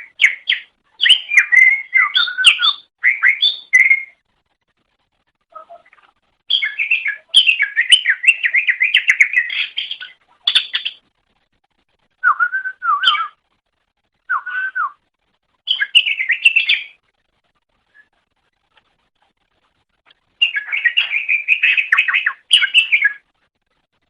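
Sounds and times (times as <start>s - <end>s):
bird singing warbling phrases: 0.0s - 4.2s, 5.5s - 11.0s, 12.2s - 13.4s, 14.3s - 14.9s, 15.7s - 17.0s, 20.4s - 23.3s.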